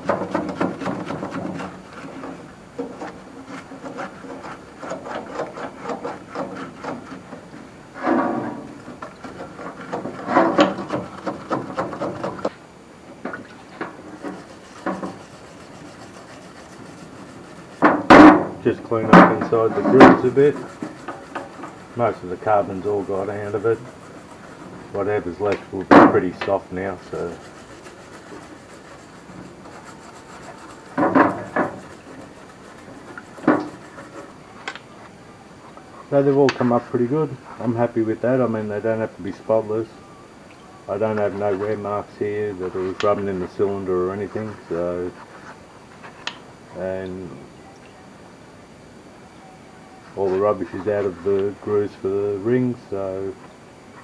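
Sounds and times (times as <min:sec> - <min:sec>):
scraping carbon off a piston: 0:00.0 - 0:12.6, 0:13.8 - 0:34.8.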